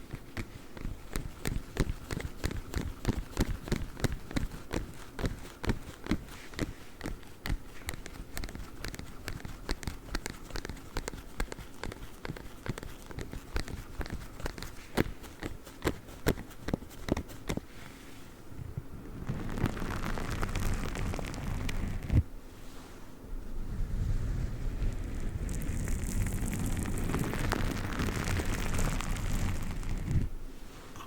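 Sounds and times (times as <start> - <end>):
claw-tipped gloves clicking: 0.0 - 17.6.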